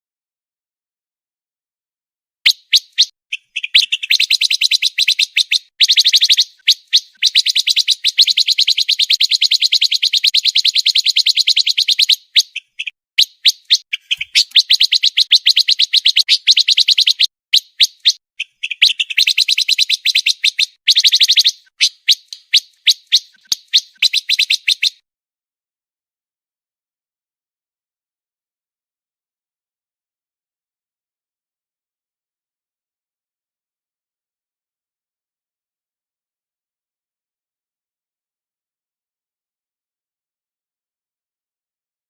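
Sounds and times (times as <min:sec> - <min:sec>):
songbird fast trill: 0:02.5 - 0:25.0.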